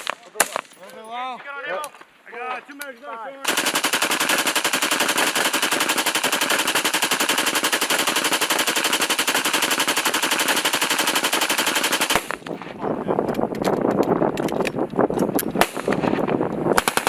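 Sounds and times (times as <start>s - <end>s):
machine gun firing: 3.4s - 12.5s, 16.8s - 17.0s.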